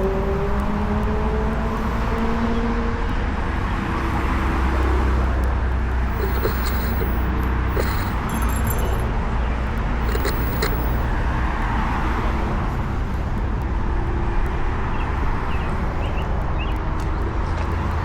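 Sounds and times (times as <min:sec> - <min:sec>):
city street traffic: 0:00.0 - 0:18.0
faint high-pitched squeals: 0:06.1 - 0:09.1, 0:10.0 - 0:11.1.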